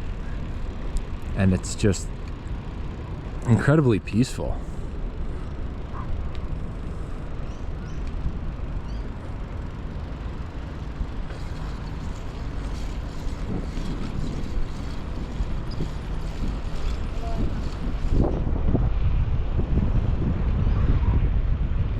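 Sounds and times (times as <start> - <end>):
bicycle tyre noise: 4.6 - 18.6
wind on microphone: 11.1 - 21.9.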